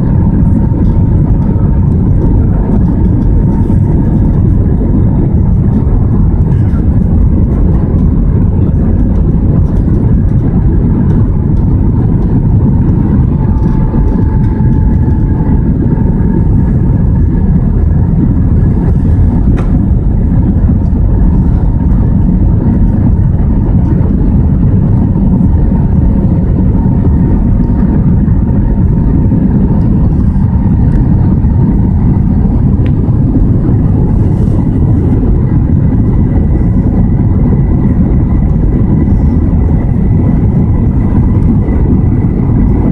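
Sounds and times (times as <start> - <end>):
aircraft cabin engine rumble: 0.0 - 42.9
faint steady hum: 0.0 - 42.9.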